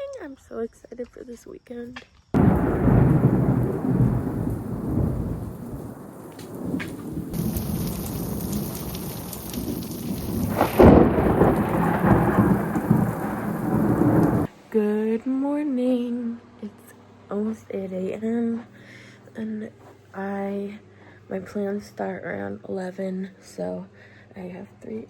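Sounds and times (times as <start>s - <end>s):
rolling thunder: 2.4s - 14.5s
sharp thunderclap: 2.4s - 14.5s
steady rain: 2.4s - 14.5s.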